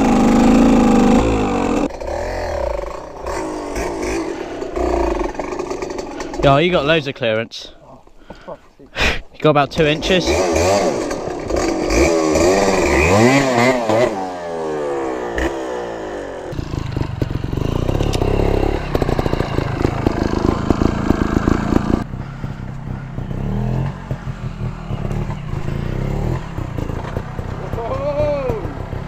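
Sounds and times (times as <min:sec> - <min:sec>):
dirt bike running close by: 0:00.0 - 0:07.0, 0:09.7 - 0:29.0
dirt bike engines revving: 0:00.0 - 0:29.0.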